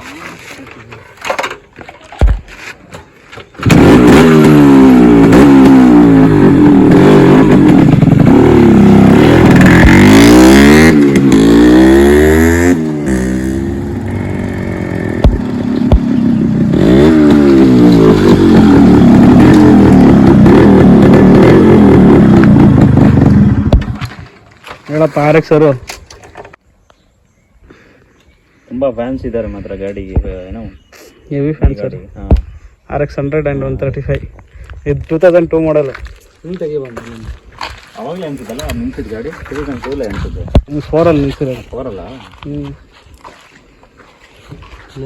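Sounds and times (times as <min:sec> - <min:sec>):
motorcycle engine revving: 0:03.5 - 0:24.3.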